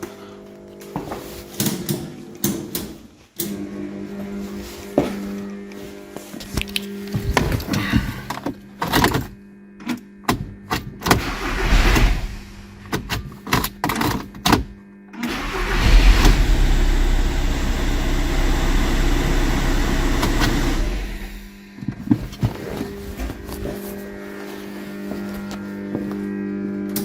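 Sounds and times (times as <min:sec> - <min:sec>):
diesel engine starting and droning: 0:11.2 - 0:12.8, 0:15.2 - 0:21.6.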